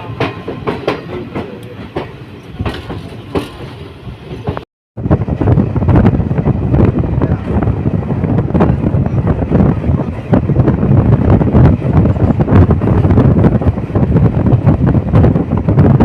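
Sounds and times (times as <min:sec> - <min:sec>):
train wheels clicking over rail joints: 0:00.0 - 0:04.6
train rumble: 0:00.0 - 0:16.0.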